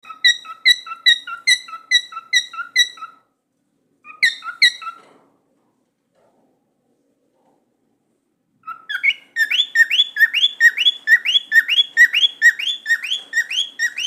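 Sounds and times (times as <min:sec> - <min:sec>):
cockatiel chirping: 0:00.0 - 0:03.2, 0:04.1 - 0:05.0, 0:08.6 - 0:14.0.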